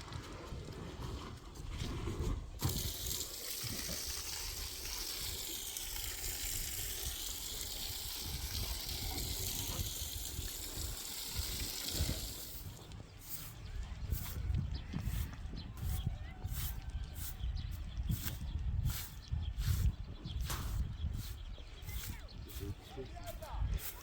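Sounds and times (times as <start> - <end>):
spraying water hiss: 2.6 - 13.6.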